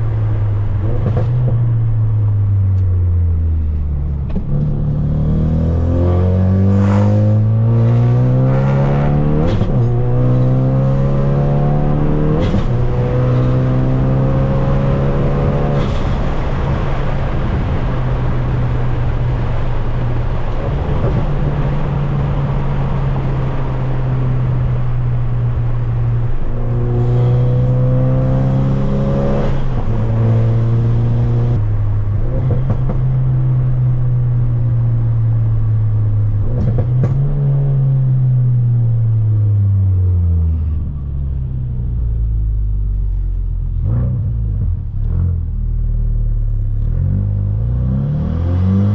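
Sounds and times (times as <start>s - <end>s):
car engine and exhaust accelerating: 0.0s - 48.9s
exhaust pops: 12.3s - 13.5s.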